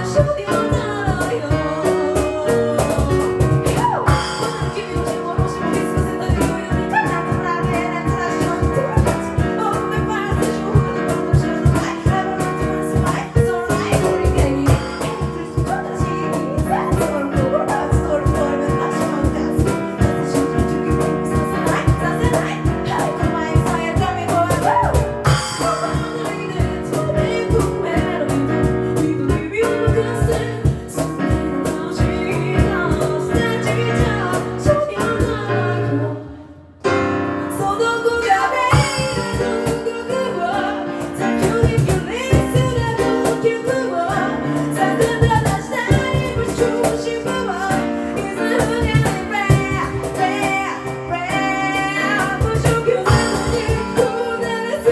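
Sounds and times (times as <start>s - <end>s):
woman singing lead: 0.0s - 54.9s
harmonising backing voices: 21.2s - 54.9s.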